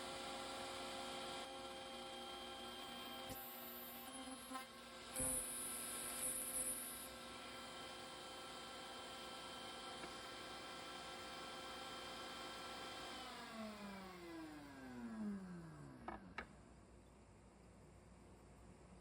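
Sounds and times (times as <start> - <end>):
machine motor running and winding down: 12.9 - 16.2.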